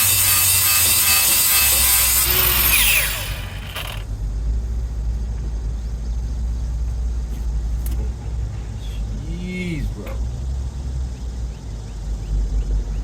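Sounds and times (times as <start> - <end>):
power tool grinding and spinning down: 0.0 - 4.0.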